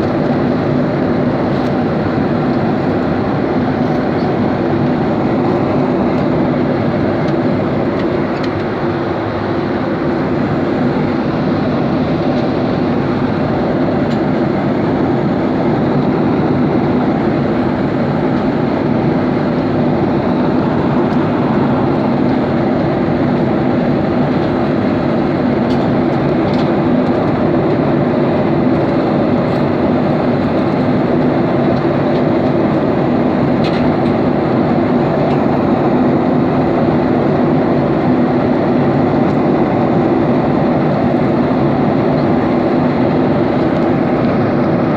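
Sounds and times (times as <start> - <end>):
airplane drone: 0.0 - 44.9.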